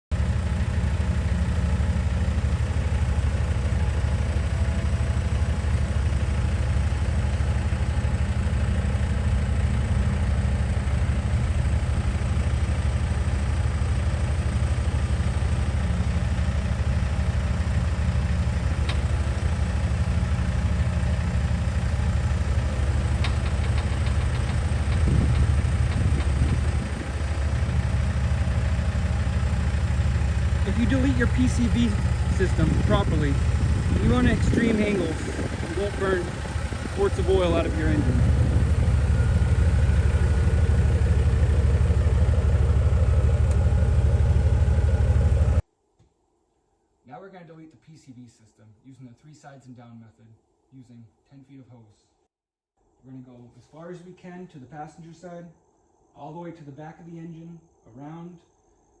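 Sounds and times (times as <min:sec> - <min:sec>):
engine idling: 0:00.0 - 0:45.6.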